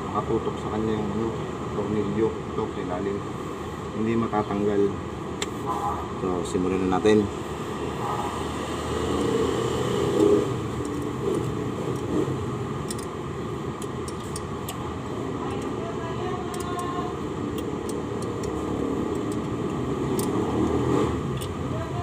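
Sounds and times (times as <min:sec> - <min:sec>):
traffic hum: 0:00.0 - 0:22.0
hand tools clicking: 0:12.8 - 0:13.1, 0:13.8 - 0:14.8, 0:16.5 - 0:21.6.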